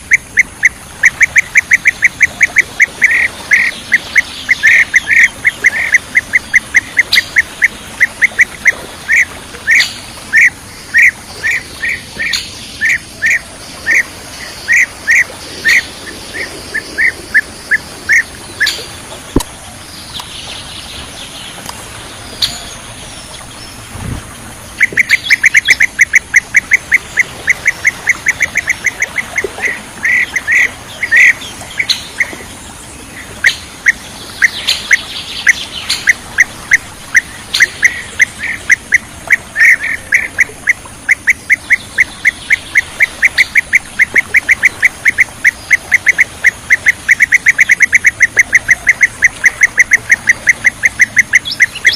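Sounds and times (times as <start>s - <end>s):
bird chirping calls: 0.0s - 23.8s, 24.7s - 51.9s.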